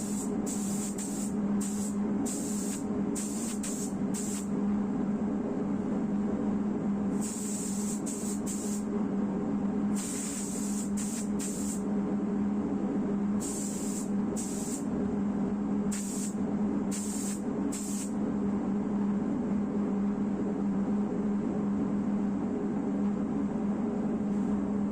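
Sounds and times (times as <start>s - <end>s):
spray gun hissing in spurts: 0.0s - 4.5s, 7.2s - 8.8s, 10.0s - 11.8s, 13.4s - 14.8s, 15.9s - 18.1s
steady low hum: 0.0s - 24.9s.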